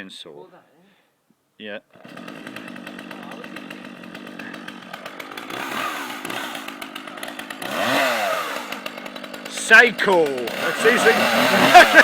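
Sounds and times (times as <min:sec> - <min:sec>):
chainsaw idling and revving: 0:01.9 - 0:12.0.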